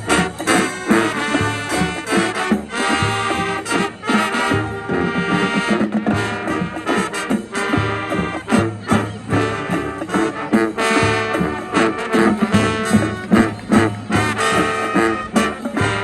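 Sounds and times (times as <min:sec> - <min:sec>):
brass instruments: 0:00.0 - 0:16.0
marching band playing: 0:00.0 - 0:16.0
steady drum beat: 0:00.0 - 0:16.0.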